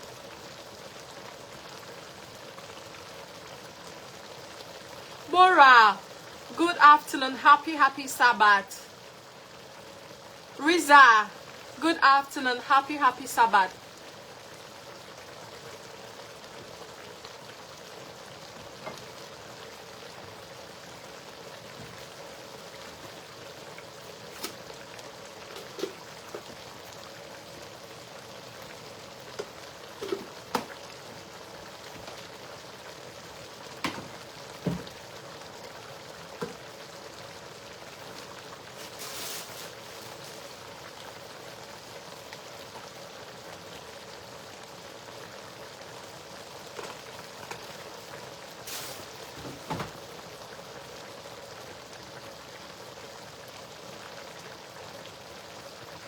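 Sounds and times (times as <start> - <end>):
stew sizzling in a pot: 0.0 - 56.0
loud hiss: 48.6 - 49.2.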